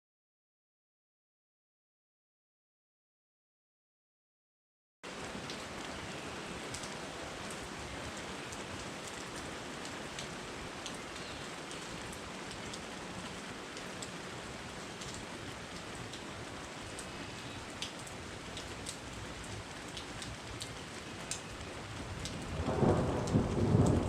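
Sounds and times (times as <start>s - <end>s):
steady rain hiss: 5.1s - 24.0s
raindrop ticks: 6.7s - 7.6s, 8.5s - 14.2s, 15.0s - 16.3s, 16.9s - 24.0s.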